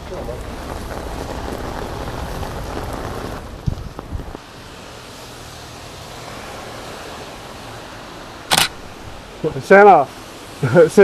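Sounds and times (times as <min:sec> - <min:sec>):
rain on a wet street: 0:00.0 - 0:11.0.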